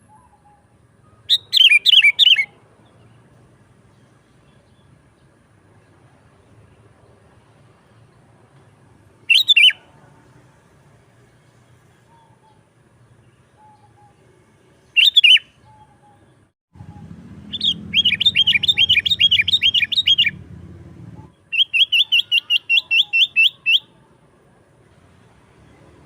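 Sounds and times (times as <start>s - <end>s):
bird chattering calls: 9.3s - 9.8s, 15.0s - 15.9s, 17.5s - 20.4s, 21.5s - 23.8s
low rumble: 20.2s - 21.3s.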